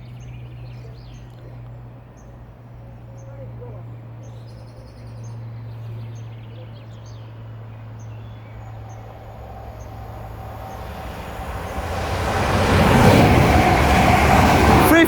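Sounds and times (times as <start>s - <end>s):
faint birds chirping: 0.0s - 14.5s
electric train approaching: 5.4s - 15.0s.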